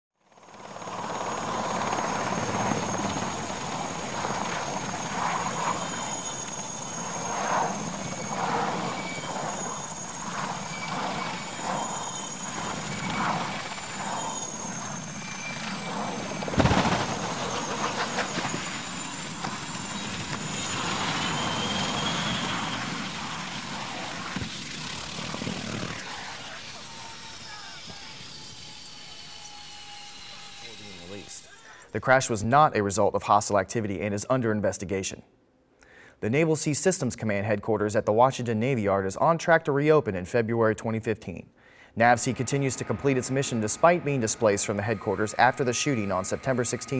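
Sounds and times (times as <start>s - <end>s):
aircraft engine noise: 0.3s - 33.0s, 41.6s - 46.9s
high wavering whistle: 4.2s - 24.2s, 25.8s - 31.9s, 42.0s - 46.9s.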